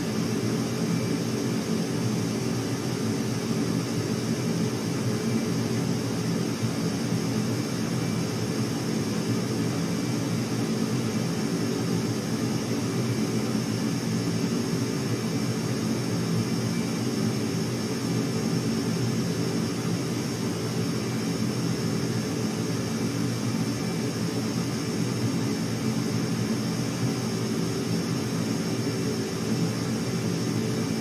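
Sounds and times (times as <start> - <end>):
aircraft engine drone: 0.0 - 31.0.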